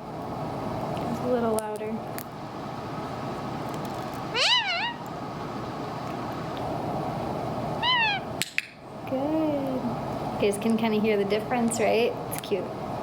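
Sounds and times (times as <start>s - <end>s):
steady background hiss: 0.0s - 13.0s
parrot soft meow-like call: 4.3s - 5.0s, 7.8s - 8.3s.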